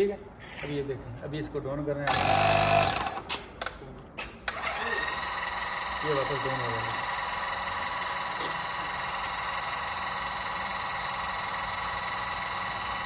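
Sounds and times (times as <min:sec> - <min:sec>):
electric jack motor whining: 0:02.1 - 0:03.2, 0:04.5 - 0:13.0.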